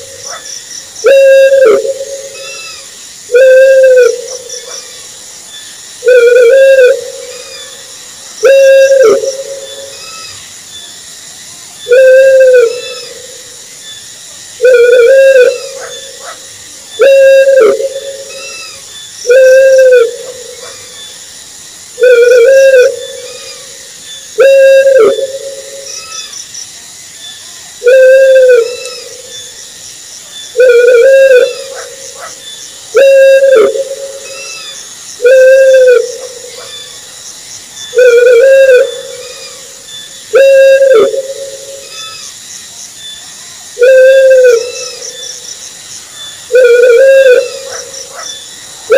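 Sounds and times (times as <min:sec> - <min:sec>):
owl hooting: 0:00.0 - 0:04.9, 0:06.0 - 0:10.4, 0:11.8 - 0:13.4, 0:14.6 - 0:16.4, 0:17.0 - 0:21.0, 0:22.0 - 0:23.8, 0:24.4 - 0:26.4, 0:27.8 - 0:29.5, 0:30.6 - 0:36.9, 0:37.9 - 0:42.3, 0:43.8 - 0:45.2, 0:46.5 - 0:48.3.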